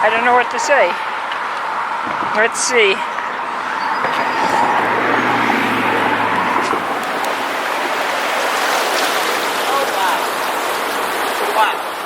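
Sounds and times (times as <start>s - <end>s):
floodwater rushing: 2.2s - 12.0s
low hum: 2.6s - 8.2s.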